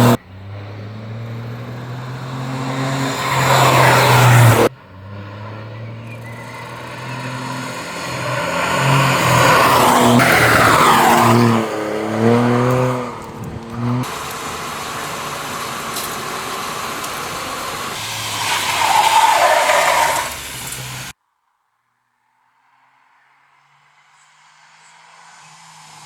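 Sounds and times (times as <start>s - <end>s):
rally car engine revving: 0.0s - 21.1s
rush of car noise: 0.0s - 21.1s.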